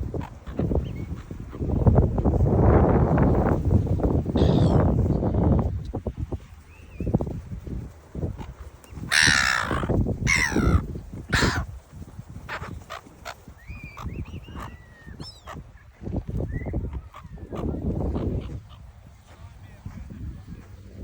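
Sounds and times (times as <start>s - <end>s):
gulls calling: 8.3s - 11.7s, 12.4s - 19.0s.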